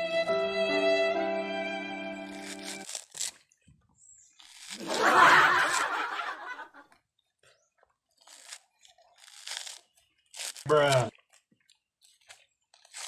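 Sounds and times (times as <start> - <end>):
coconut husk tearing with teeth: 2.3 - 3.6, 4.2 - 6.2, 8.1 - 13.0
burst of laughter: 4.8 - 6.8.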